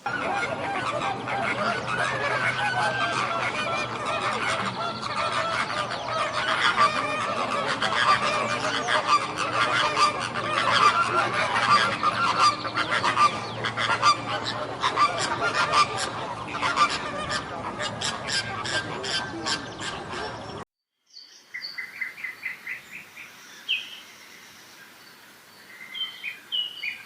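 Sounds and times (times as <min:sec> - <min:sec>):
flock of fowl calling: 0:00.0 - 0:20.6.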